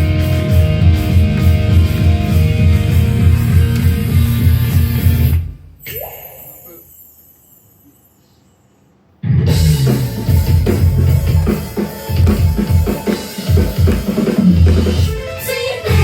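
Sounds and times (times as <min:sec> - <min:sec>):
loud rock song: 0:00.0 - 0:05.4.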